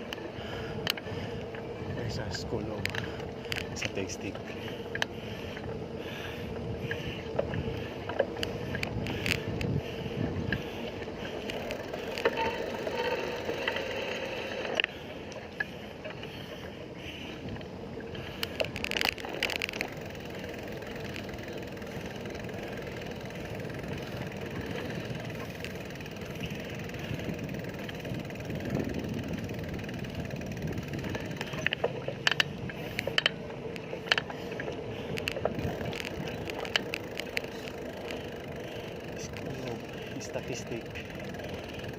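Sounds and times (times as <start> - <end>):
bicycle road and wind noise: 0.0 - 41.9
clicks and rattles: 31.0 - 38.3.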